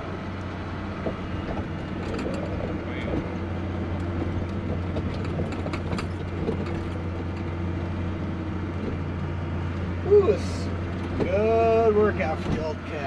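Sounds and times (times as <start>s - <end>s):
snowcat engine under load: 0.0s - 13.0s
clicks and rattles: 4.2s - 7.5s.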